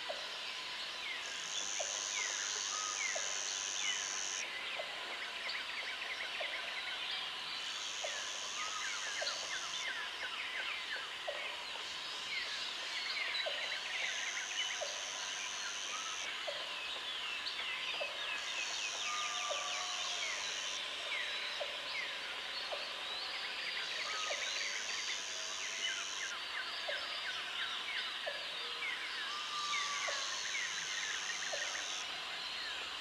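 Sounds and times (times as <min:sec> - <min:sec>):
high insect buzz: 0:01.4 - 0:04.4.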